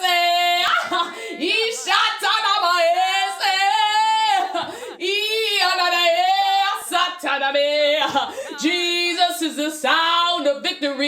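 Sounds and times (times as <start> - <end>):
woman breathing: 1.1 - 1.4, 4.6 - 5.0, 8.3 - 8.6.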